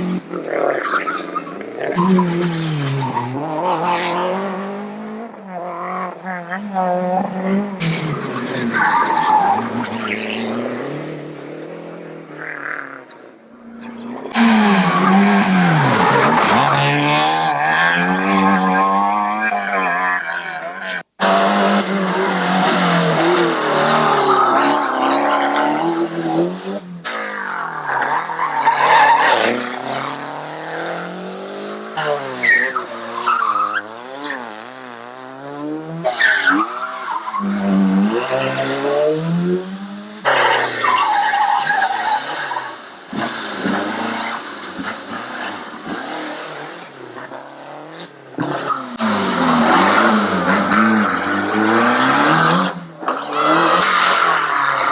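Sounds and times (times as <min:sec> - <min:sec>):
rally car engines revving: 0:00.0 - 0:54.9
tyres squealing: 0:12.3 - 0:21.3, 0:48.6 - 0:54.9.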